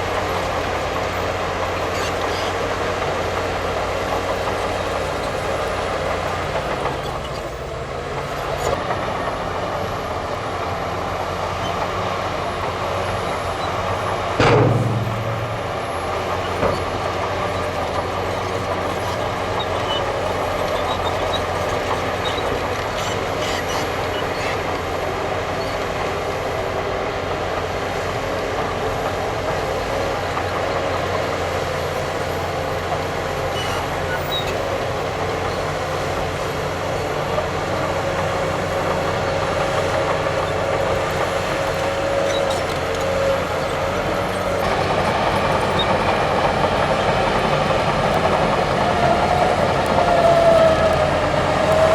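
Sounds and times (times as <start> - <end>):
heavy diesel machinery running: 0.0 - 51.9
loud deep thud: 14.4 - 17.0
small knock: 14.4 - 17.2.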